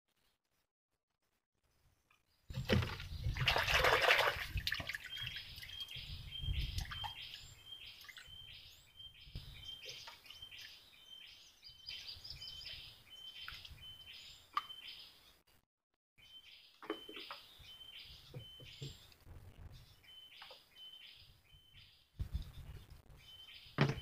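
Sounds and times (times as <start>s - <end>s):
low wind-like rumble: 5.9s - 7.6s.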